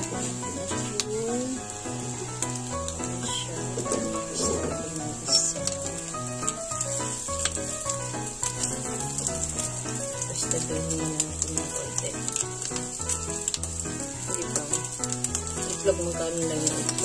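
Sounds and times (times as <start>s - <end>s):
omelette sizzling in oil: 0.0s - 17.0s
oil spattering pops: 5.6s - 16.0s.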